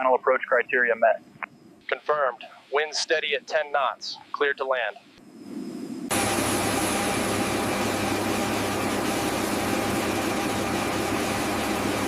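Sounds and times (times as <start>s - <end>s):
engine drone: 5.1s - 12.0s.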